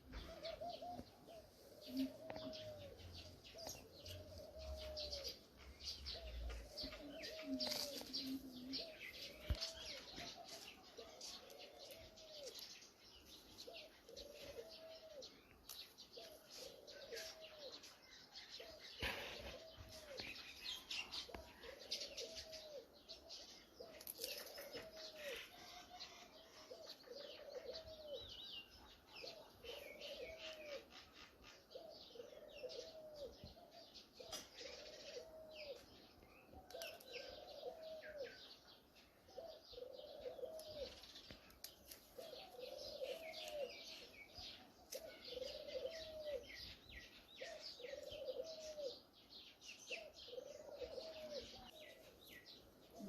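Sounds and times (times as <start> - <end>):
small birds chirping: 0.0 - 53.0
low repeated bird call: 16.2 - 35.9, 42.1 - 49.1, 49.9 - 53.0.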